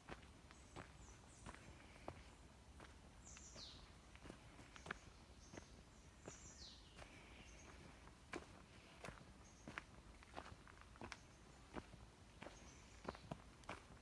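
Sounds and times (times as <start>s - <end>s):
footsteps on forest trail: 0.0s - 14.0s.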